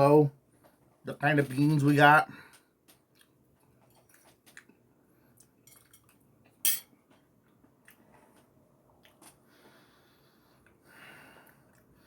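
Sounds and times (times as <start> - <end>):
utensil clinking on a plate: 5.7 - 6.9.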